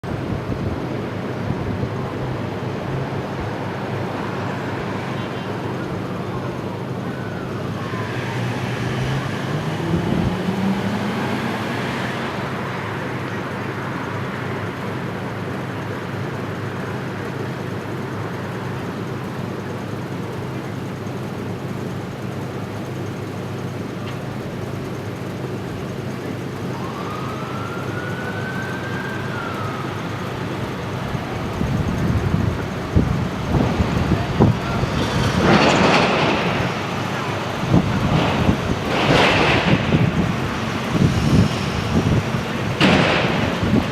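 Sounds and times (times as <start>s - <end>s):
city traffic hum: 0.0s - 43.9s
siren wailing: 0.9s - 23.3s, 24.5s - 43.9s
loud low rumbling: 29.4s - 43.9s.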